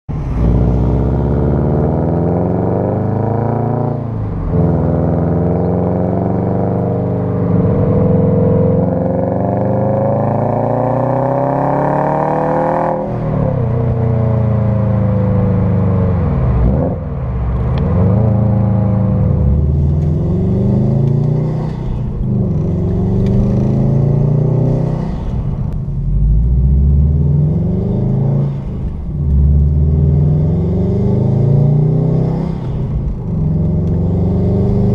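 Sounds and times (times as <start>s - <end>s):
car engine accelerating hard: 0.1s - 34.9s.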